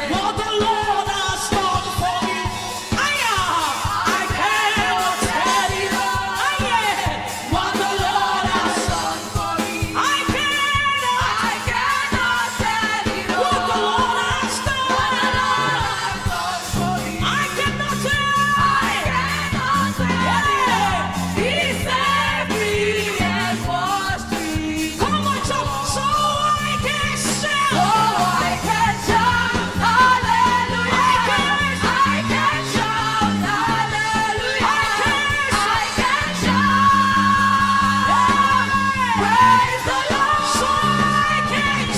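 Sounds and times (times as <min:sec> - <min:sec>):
band with drums: 0:00.0 - 0:41.9
woman singing lead: 0:00.0 - 0:41.9
bass line: 0:13.3 - 0:41.9.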